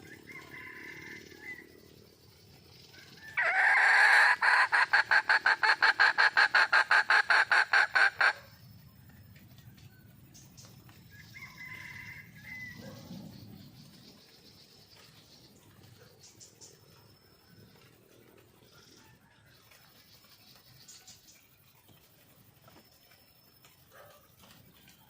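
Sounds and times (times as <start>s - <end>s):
hen calling and clucking: 3.3s - 8.6s.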